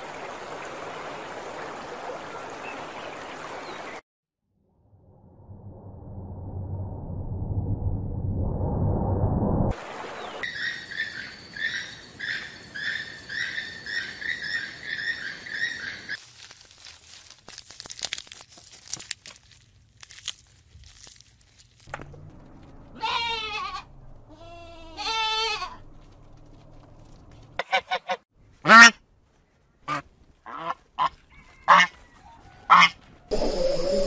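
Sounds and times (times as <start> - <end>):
giraffe cropping grass: 16.2 - 23.0
sheep bleating: 22.9 - 25.8
flamingos honking: 29.9 - 31.9, 32.7 - 33.8.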